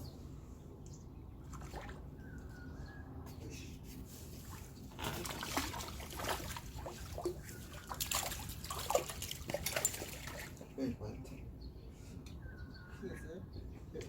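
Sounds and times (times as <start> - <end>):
water splashing and sloshing: 1.2 - 2.6, 3.9 - 10.8.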